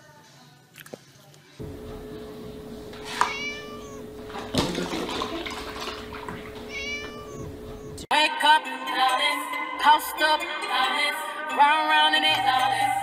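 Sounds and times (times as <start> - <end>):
steady low hum: 1.6 - 8.1
kitten meowing: 2.9 - 4.3, 6.1 - 8.0
milk carton knocking over: 4.3 - 6.5.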